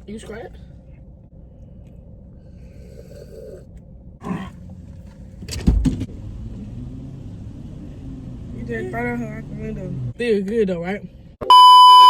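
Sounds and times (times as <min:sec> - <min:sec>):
steady low rumble: 0:00.0 - 0:11.4
sharp loud thumps: 0:05.4 - 0:06.1.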